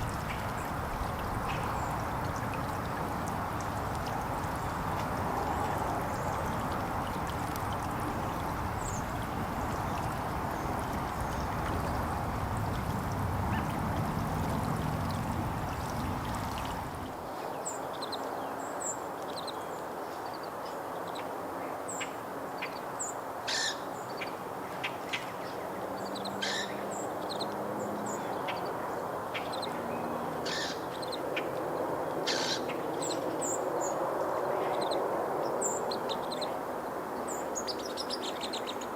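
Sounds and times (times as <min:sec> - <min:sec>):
songbirds chirping: 0:00.0 - 0:36.6.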